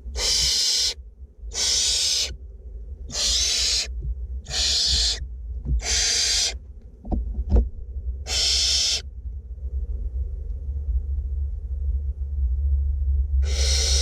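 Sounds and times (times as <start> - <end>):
low steady hum: 0.0 - 14.0
owlets hissing calls: 0.1 - 2.4, 3.1 - 5.2, 5.8 - 6.6, 8.3 - 9.0, 13.4 - 14.0.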